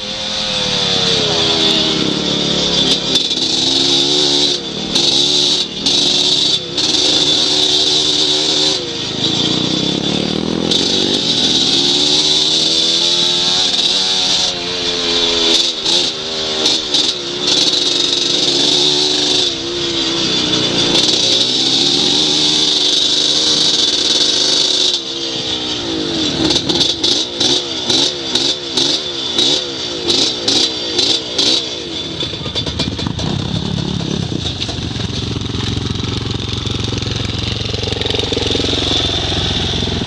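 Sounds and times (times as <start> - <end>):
off-road motorcycle engine revving: 0.0 - 40.0.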